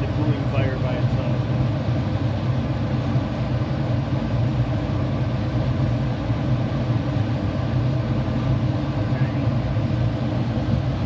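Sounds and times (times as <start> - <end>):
rooftop hvac unit humming: 0.0 - 11.0.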